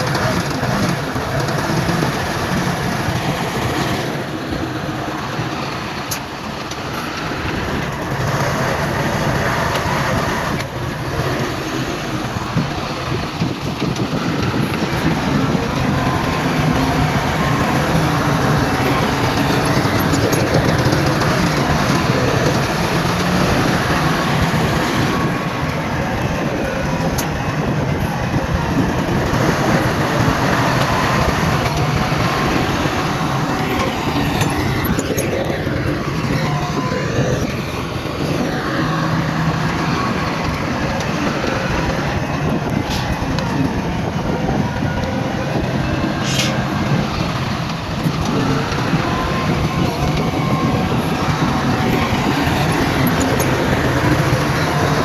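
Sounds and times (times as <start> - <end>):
diesel machinery rumbling: 0.0 - 55.0.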